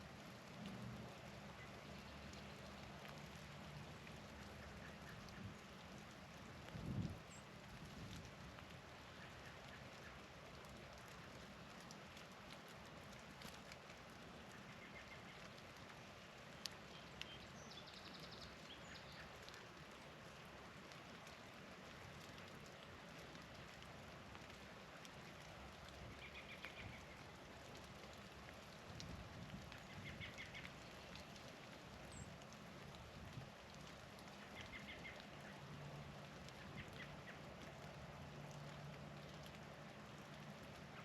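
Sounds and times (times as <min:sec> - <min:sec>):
songbirds twittering: 0:01.5 - 0:03.2, 0:16.8 - 0:19.6, 0:26.1 - 0:27.3, 0:29.7 - 0:31.4, 0:34.3 - 0:35.7.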